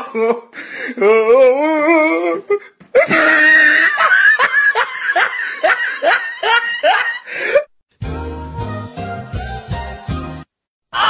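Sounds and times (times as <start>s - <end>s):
person laughing: 2.4s - 7.7s.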